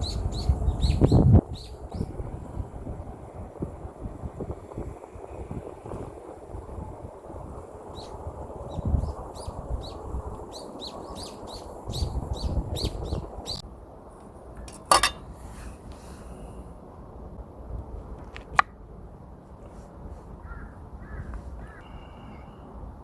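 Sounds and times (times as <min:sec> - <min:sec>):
small bird chirping: 0:00.0 - 0:02.1, 0:08.0 - 0:13.6
low wind rumble: 0:00.0 - 0:23.0
sharp ringing clink: 0:14.7 - 0:15.2.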